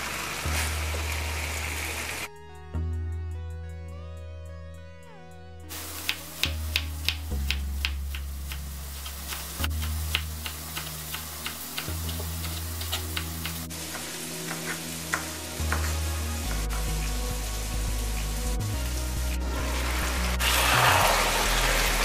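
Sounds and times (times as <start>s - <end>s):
steady hiss: 0.0s - 2.8s, 5.7s - 22.0s
background music with bass line: 0.4s - 22.0s.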